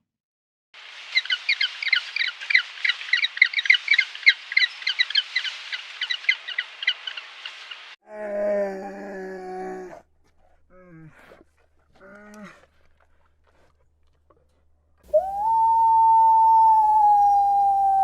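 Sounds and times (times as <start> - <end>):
low drawn-out animal call: 15.1 - 18.0.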